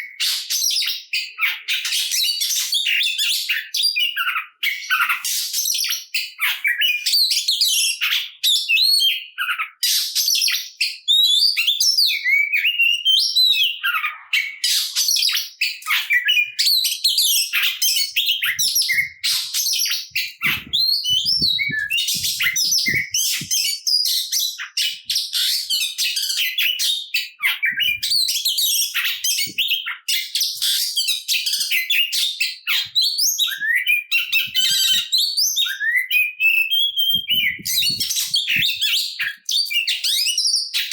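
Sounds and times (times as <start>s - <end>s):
bird singing varied chirps: 15.6s - 25.5s, 27.4s - 29.9s, 33.4s - 40.9s.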